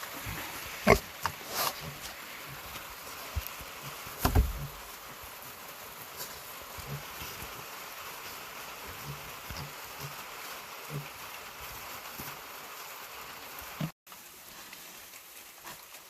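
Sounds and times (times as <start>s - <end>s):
rain pattering: 0.0s - 16.0s
pigs grunting: 0.1s - 2.8s, 6.7s - 7.6s, 8.3s - 11.3s.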